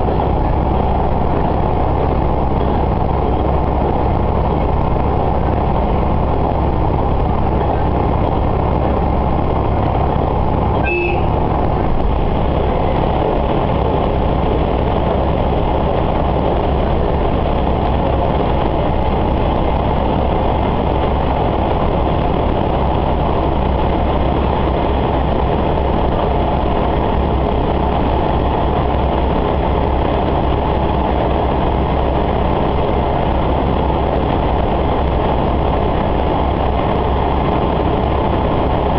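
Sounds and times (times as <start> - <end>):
diesel railcar engine hum: 0.0 - 38.9
train wheels rolling on rails: 0.0 - 38.9.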